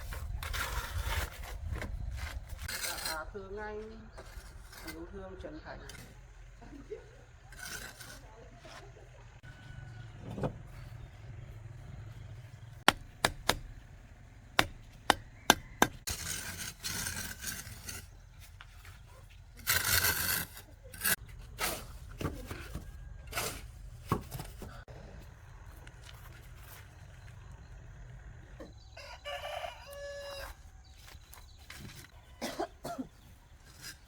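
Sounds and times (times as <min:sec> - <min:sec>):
mortar scraping: 0:00.0 - 0:03.4, 0:04.2 - 0:05.2, 0:07.2 - 0:09.0, 0:14.5 - 0:24.9
trowel tapping bricks: 0:14.6 - 0:16.3.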